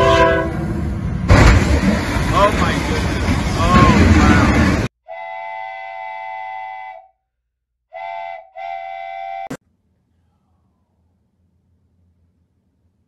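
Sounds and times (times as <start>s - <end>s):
train horn blasts: 0.0s - 0.7s, 5.1s - 7.2s, 7.9s - 9.6s
loud crash noise: 1.2s - 4.9s.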